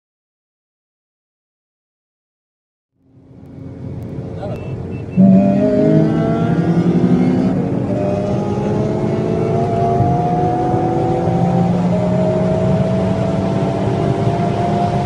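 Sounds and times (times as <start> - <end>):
car engine accelerating hard: 3.2 - 15.0.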